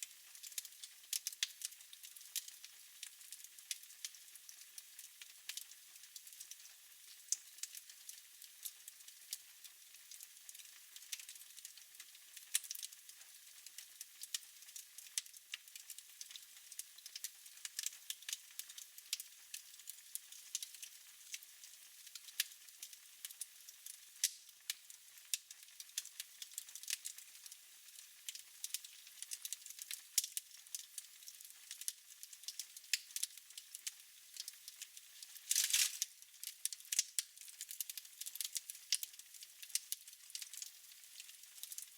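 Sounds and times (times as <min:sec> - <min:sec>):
wood fire crackling: 0:00.0 - 0:41.9
fire pops: 0:35.2 - 0:36.1.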